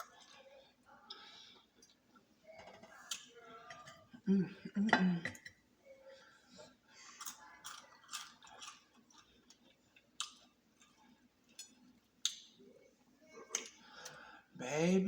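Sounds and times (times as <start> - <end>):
person chewing crispy food: 7.0 - 12.5.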